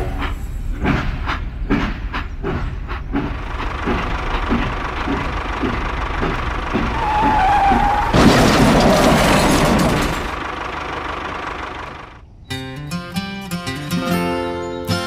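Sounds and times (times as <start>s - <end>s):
vehicle engine chugging: 0.0s - 12.4s
loud rushing skidding noise: 2.6s - 12.2s.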